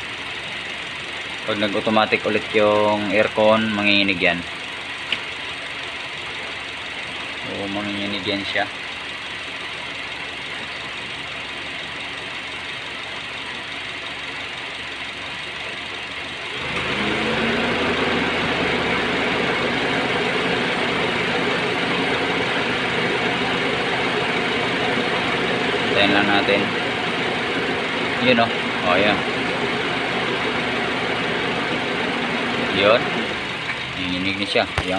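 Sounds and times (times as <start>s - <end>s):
car engine idling: 0.0s - 34.9s
air conditioning fan rush: 16.6s - 34.9s.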